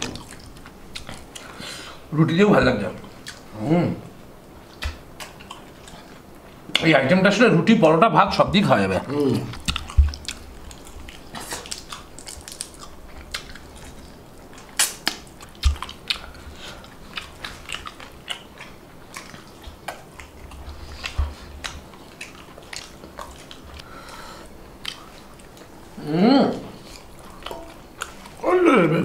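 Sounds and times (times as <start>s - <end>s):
wet chewing clicks: 0.0s - 1.6s, 2.9s - 3.5s, 4.4s - 6.9s, 9.1s - 25.8s, 26.8s - 28.5s.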